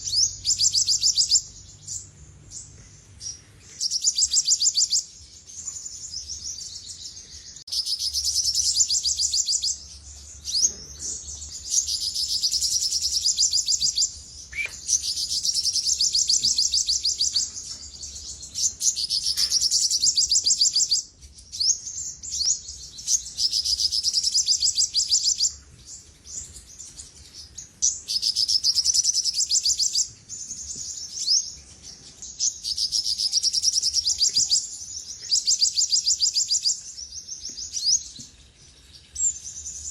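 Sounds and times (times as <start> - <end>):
sunbird singing: 0.0 - 39.9.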